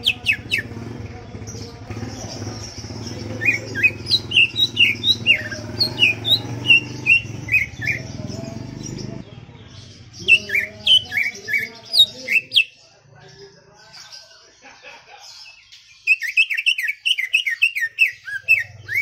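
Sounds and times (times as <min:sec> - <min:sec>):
bird singing whistled notes: 0:00.0 - 0:00.9, 0:01.9 - 0:09.2, 0:09.9 - 0:12.8, 0:15.8 - 0:19.0.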